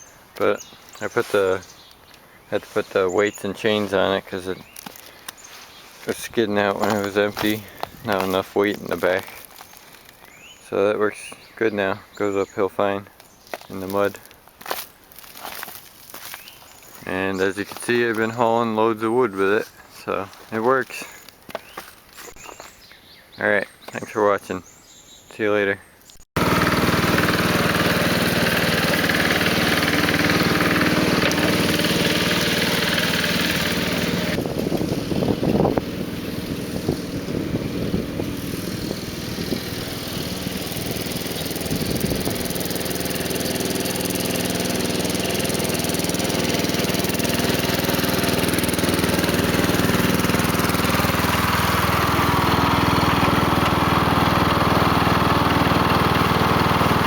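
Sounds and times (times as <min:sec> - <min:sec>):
small gasoline engine running: 0:06.2 - 0:10.2, 0:26.4 - 0:57.0.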